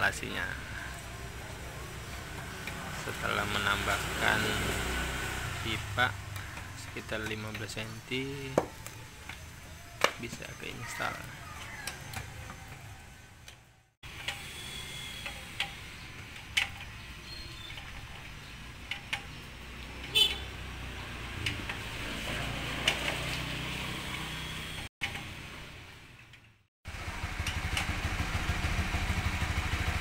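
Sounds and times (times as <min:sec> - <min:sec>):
low workshop hum: 0:11.9 - 0:19.0
metal tools clicking and knocking: 0:15.2 - 0:20.1.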